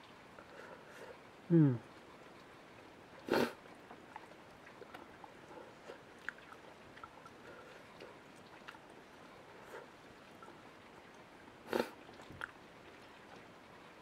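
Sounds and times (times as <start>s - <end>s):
person chewing food: 3.3s - 8.9s, 11.7s - 12.6s.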